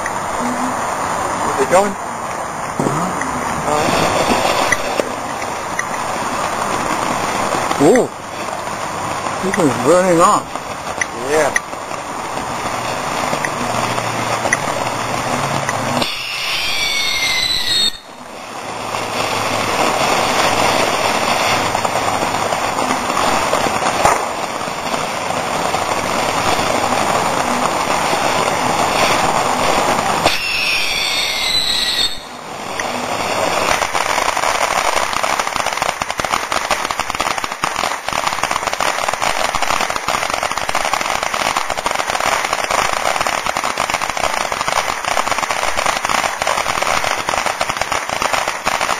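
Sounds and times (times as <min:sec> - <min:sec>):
fireworks crackling: 0:00.0 - 0:48.9
shrill firework whistles: 0:16.0 - 0:18.2, 0:30.2 - 0:35.3.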